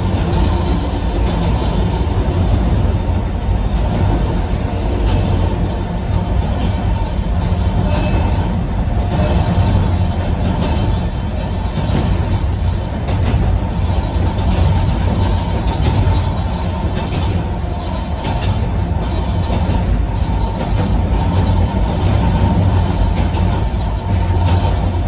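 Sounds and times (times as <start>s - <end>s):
train wheels rumbling on track: 0.0s - 25.0s.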